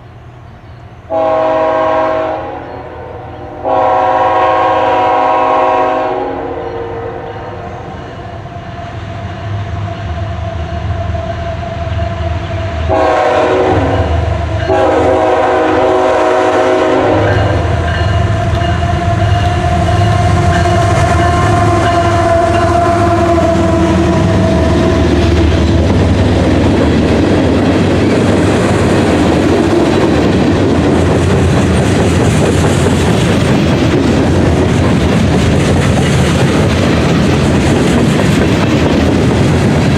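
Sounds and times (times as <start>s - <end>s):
train air horn blasts: 1.1s - 8.2s, 10.6s - 26.3s
locomotive engine rumble: 7.6s - 39.9s.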